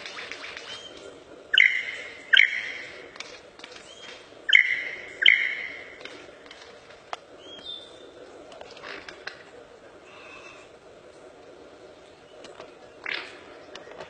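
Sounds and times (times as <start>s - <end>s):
bird calling: 0.0s - 14.0s.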